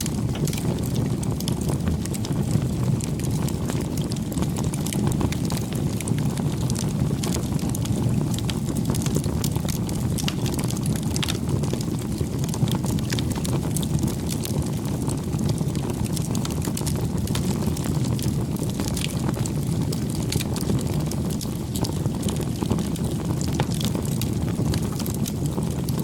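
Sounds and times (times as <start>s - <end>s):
campfire crackling and popping: 0.0s - 26.0s
low rush of flame: 0.0s - 26.0s.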